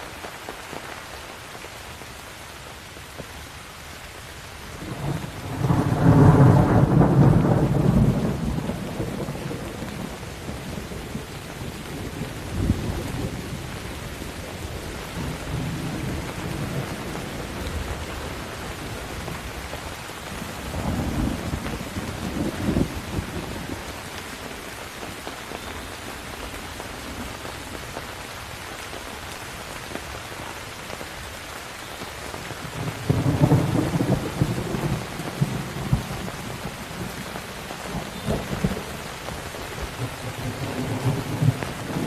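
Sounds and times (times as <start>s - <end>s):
steady rain: 0.0s - 42.0s
rolling thunder: 4.8s - 13.8s, 20.3s - 23.9s, 32.7s - 39.1s.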